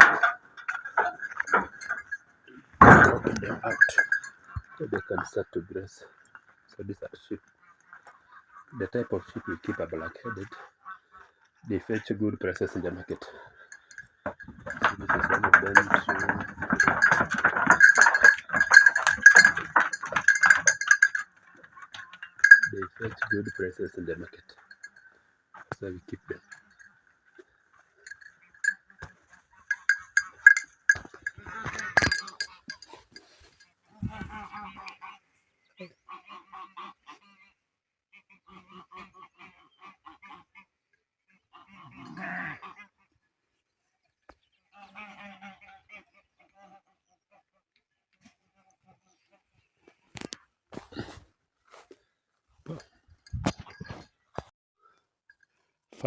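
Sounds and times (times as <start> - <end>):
clinks and knocks: 0.0 - 5.6, 12.6 - 34.4, 52.7 - 54.5
sheep bleating: 41.6 - 42.8.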